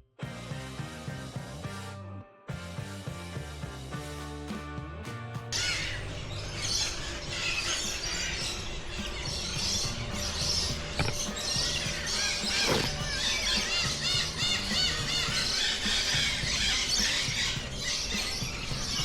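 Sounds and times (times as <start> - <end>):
background music: 0.0 - 19.0
flock of small birds chirping: 5.6 - 19.0.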